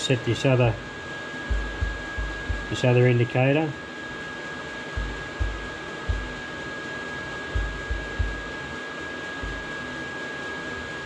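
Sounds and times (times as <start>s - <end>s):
whirring hiss: 0.0s - 10.0s
thin high whine: 0.0s - 11.0s
dull low knocks on metal: 1.5s - 2.7s, 5.0s - 6.4s, 7.5s - 8.5s, 9.4s - 9.6s.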